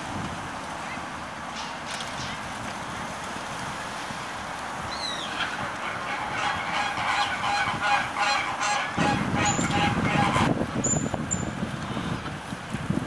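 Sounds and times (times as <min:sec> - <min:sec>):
bird honking calls: 0:04.9 - 0:11.1.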